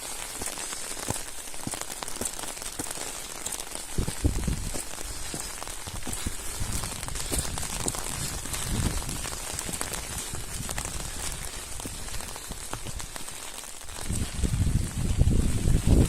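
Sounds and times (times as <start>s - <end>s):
steady rain drops: 0.0s - 16.0s.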